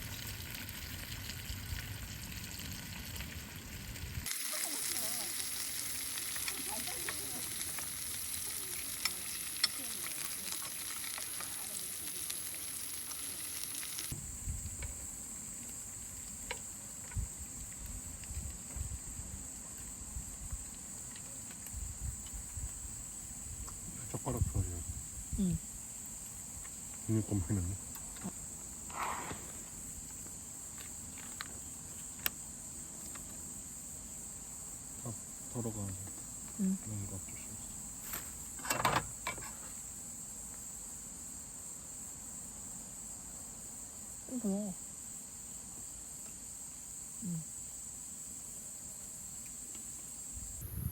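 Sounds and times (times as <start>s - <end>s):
food sizzling in a pan: 0.0s - 14.2s, 50.4s - 50.9s
crickets trilling: 0.0s - 50.9s.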